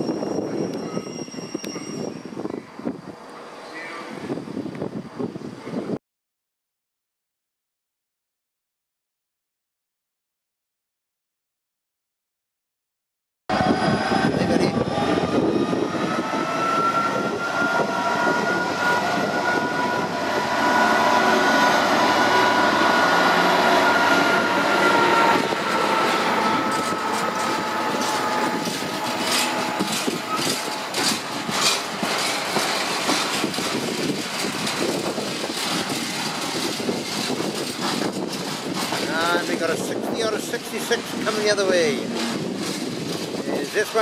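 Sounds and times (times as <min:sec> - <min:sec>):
diesel locomotive engine running: 0:13.5 - 0:44.0
train wheels clicking over rail joints: 0:22.8 - 0:44.0.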